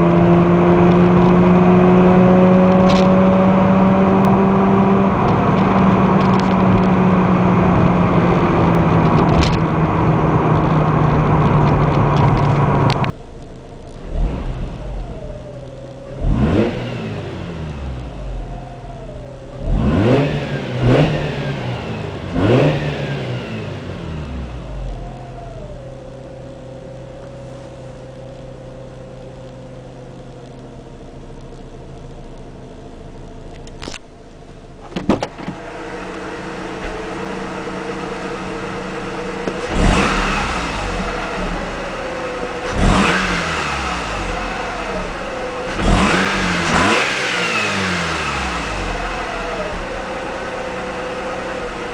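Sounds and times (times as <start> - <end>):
rotary engine drone: 0.0 - 28.5, 33.0 - 51.9
engine idling: 0.0 - 51.9
engine throttle blips: 0.0 - 51.9.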